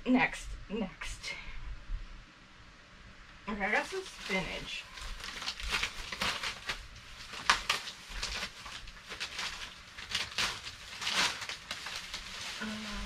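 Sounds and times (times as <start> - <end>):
plastic packaging crinkling: 3.6 - 13.0.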